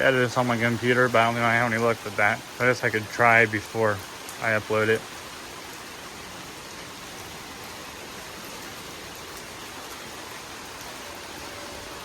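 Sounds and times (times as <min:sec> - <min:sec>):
rain: 0:00.0 - 0:12.0
wind: 0:00.0 - 0:12.0.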